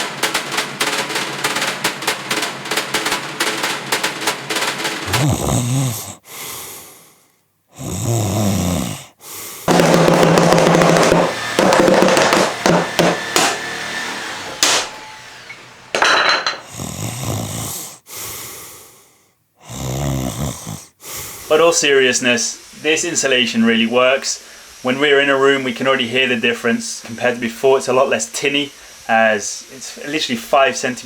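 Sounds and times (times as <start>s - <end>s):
person snoring: 5.0s - 10.8s, 16.6s - 21.6s.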